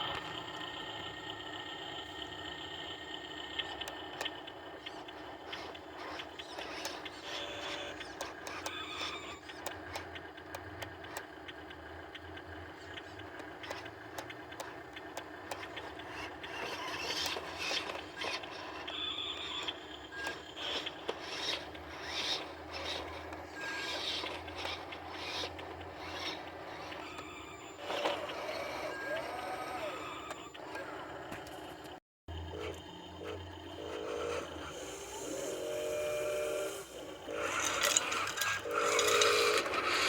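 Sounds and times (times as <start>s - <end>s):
truck engine humming: 0.0s - 40.0s
scraping and rasping noises: 32.7s - 40.0s.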